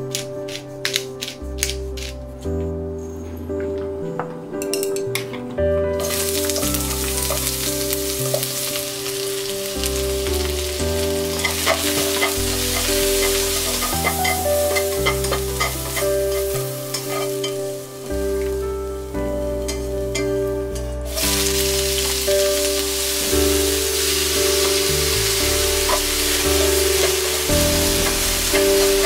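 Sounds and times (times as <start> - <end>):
chopsticks clicking against pan: 0.1 - 2.2
onion sizzling in hot oil: 6.0 - 20.2, 21.1 - 29.0.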